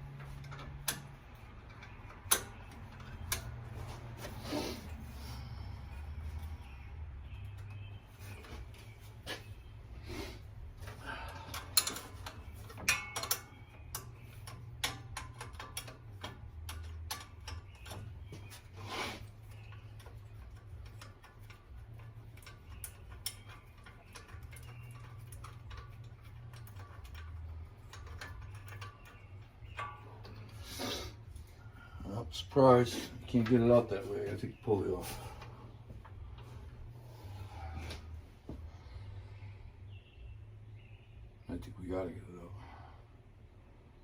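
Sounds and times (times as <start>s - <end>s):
low steady hum: 0.0s - 44.0s
hand tools clicking and clinking: 10.8s - 31.0s.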